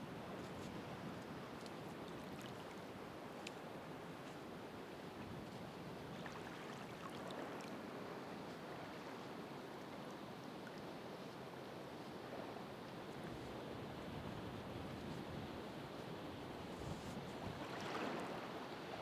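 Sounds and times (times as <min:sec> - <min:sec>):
ocean waves washing on shore: 0:00.0 - 0:19.0
faint high ticks: 0:03.4 - 0:03.6.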